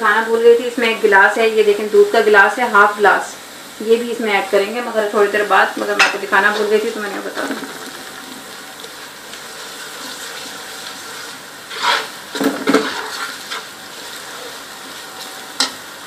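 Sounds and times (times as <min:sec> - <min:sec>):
onions sizzling in oil: 0:00.0 - 0:16.0
stirring in a pot: 0:05.7 - 0:16.0.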